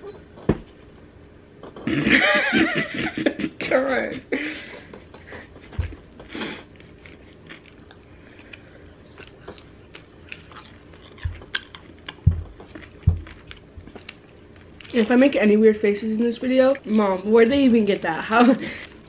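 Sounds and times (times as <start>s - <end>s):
chewing fried food: 5.2s - 15.4s.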